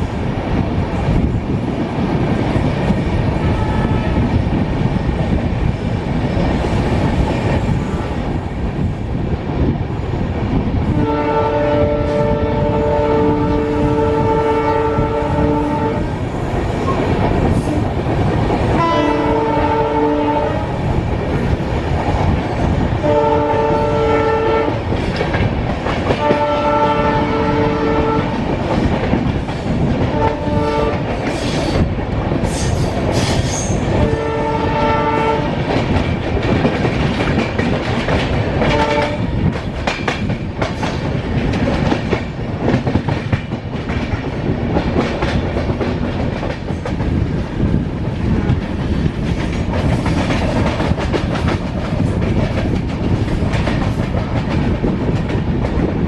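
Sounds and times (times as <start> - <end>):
train rumbling and clacking: 0.0 - 56.0
locomotive horn blasts: 3.5 - 4.2, 10.9 - 16.1, 18.8 - 20.7, 23.0 - 24.8, 26.2 - 28.4, 30.1 - 31.0, 34.0 - 35.6, 38.7 - 39.2.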